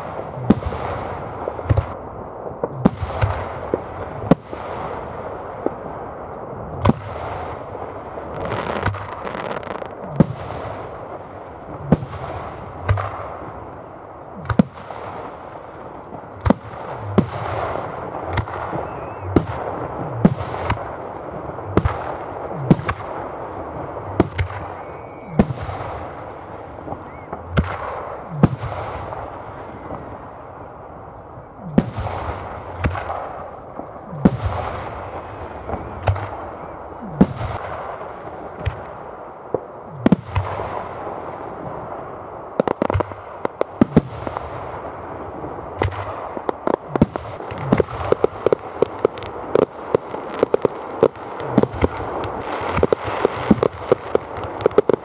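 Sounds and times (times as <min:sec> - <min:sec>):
fireworks crackle: 0:00.0 - 0:55.0
firework shells bursting: 0:14.2 - 0:41.6.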